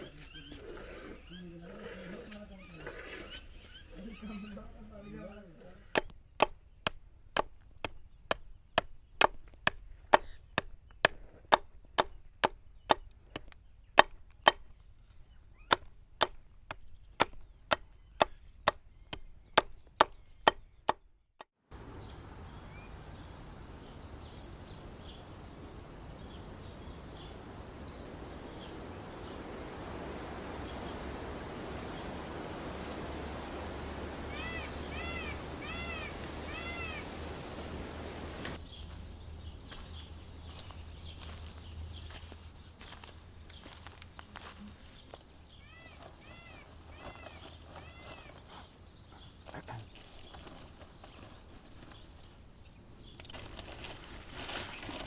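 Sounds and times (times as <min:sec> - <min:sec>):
bird chirping: 0:00.0 - 0:06.8, 0:21.7 - 0:55.0
even hiss: 0:21.8 - 0:50.0.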